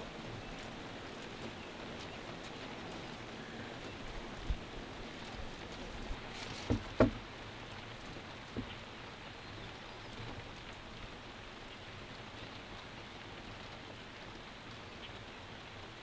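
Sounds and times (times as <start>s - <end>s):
steady rain falling: 0.0s - 16.0s
dull knocks: 6.0s - 8.9s.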